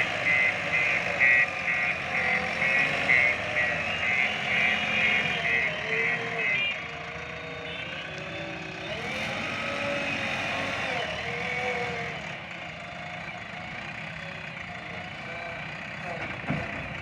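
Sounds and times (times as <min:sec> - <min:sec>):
diesel engine wavering pitch: 0:00.0 - 0:16.2.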